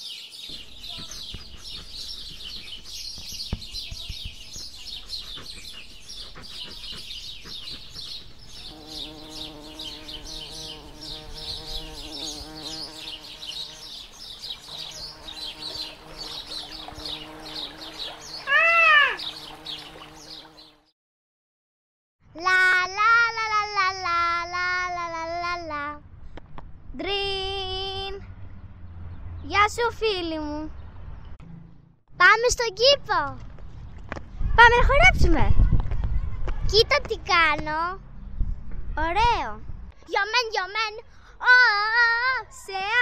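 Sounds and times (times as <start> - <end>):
birds chirping: 0.0 - 20.9
loud rising-and-falling bird call: 15.7 - 20.4.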